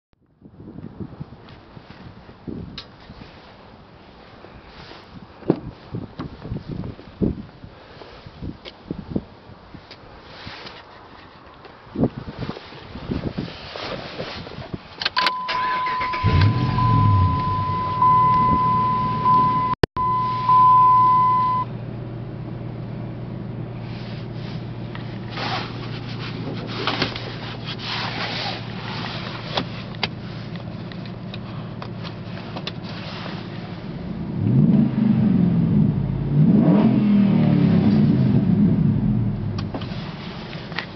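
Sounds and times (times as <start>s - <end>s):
car engine cranking and idling: 14.6s - 40.9s
high warning chime: 15.2s - 21.6s
engine revving: 15.6s - 19.7s, 34.3s - 39.7s.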